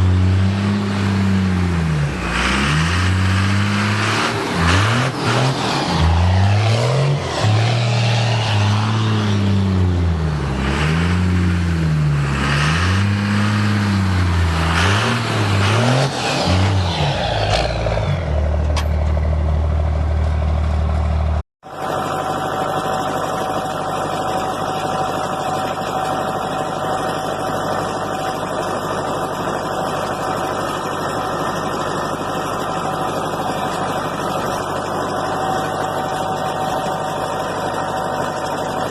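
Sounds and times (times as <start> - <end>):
truck engine revving: 0.0 - 38.9
engine idling: 14.0 - 38.9.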